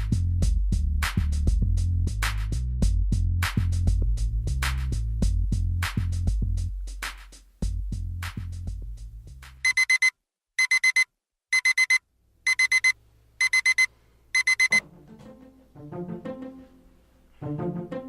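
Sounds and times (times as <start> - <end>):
digital alarm clock beeping: 9.6 - 14.8
beat-driven music track: 12.5 - 18.0
plucked string music: 14.8 - 18.0.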